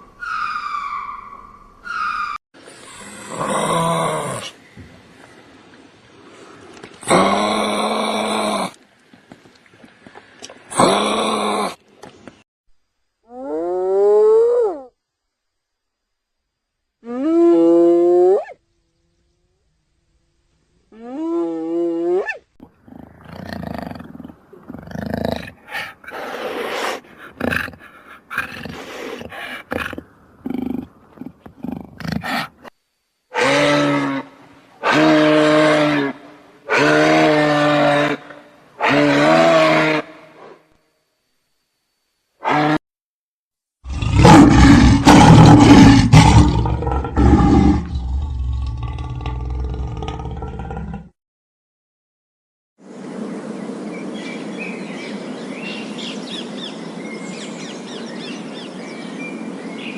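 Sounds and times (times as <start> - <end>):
animal growling and roaring: 2.8 - 4.6, 43.8 - 51.2.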